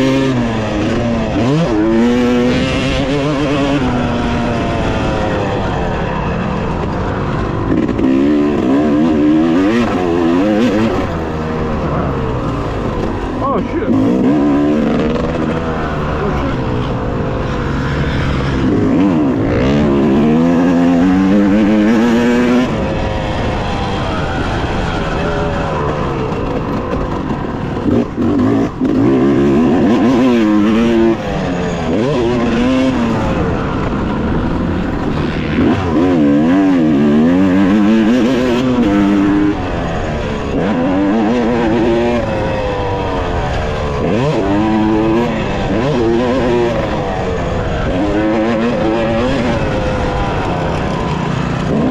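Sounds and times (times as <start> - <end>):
dirt bike engine revving: 0.0 - 51.9.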